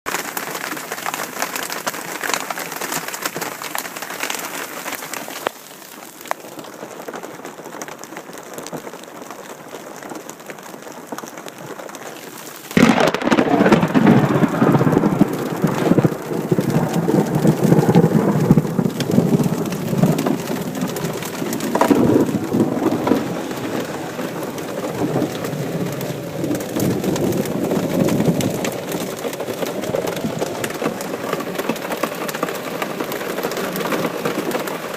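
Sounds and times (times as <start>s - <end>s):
rain falling: 0.1s - 34.9s
loud thunderclap: 12.8s - 31.5s
rolling rumble of thunder: 12.8s - 31.7s.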